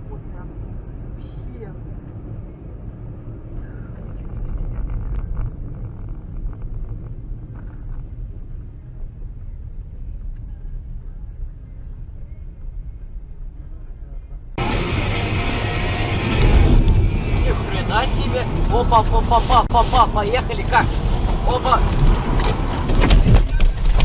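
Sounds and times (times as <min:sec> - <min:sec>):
car driving on road: 0:00.0 - 0:24.0.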